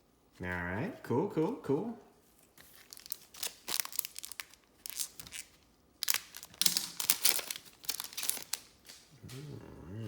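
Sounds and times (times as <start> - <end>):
foil wrapper crinkling and tearing: 2.6 - 9.1.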